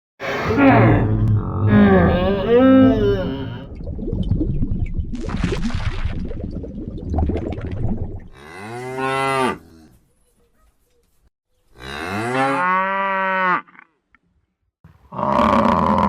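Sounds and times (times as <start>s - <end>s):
cow mooing: 11.8s - 13.9s.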